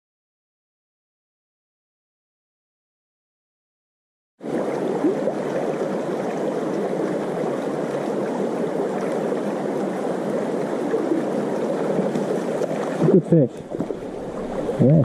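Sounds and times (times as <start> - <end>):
shallow water rushing over stones: 4.4 - 15.0.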